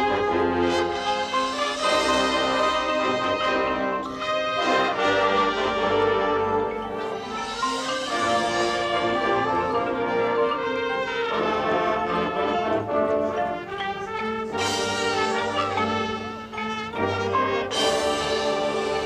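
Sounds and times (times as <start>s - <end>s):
marching band brass chords: 0.0s - 19.0s.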